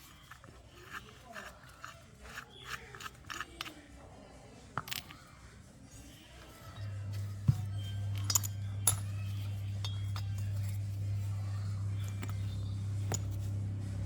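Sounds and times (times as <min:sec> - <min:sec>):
steady low hum: 0:06.0 - 0:14.0
metallic clinks: 0:06.6 - 0:11.1.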